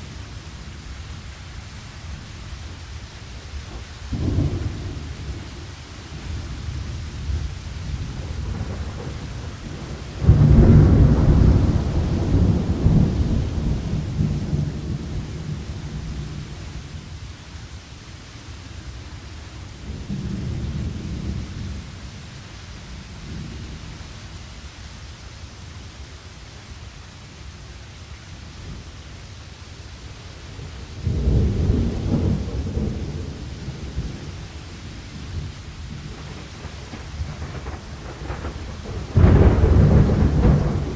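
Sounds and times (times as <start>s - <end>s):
steady rain: 0.0s - 40.9s
low rolling thunder: 3.6s - 17.2s, 19.8s - 24.0s, 30.5s - 40.9s
loud thunderclap: 4.1s - 5.5s, 7.3s - 16.4s, 31.0s - 34.4s, 35.1s - 40.9s.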